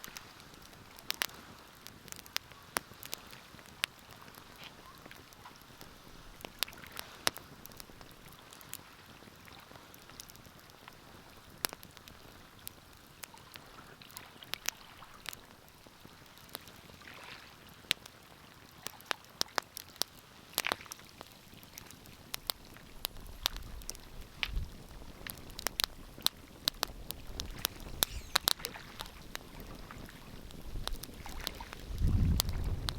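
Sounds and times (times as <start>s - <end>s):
wood fire crackling: 0.0s - 9.4s, 18.0s - 32.9s.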